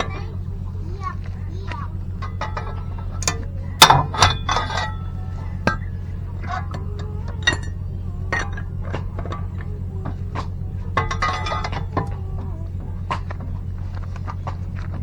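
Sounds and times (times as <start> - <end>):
low steady hum: 0.0 - 15.0
metal tools clinking: 1.0 - 13.7.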